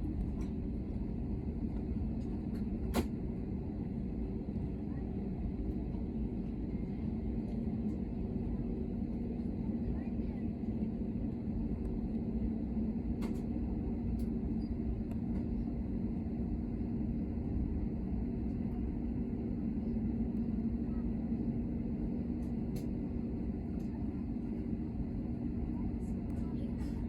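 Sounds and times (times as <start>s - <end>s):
airliner engine drone: 0.0s - 27.0s.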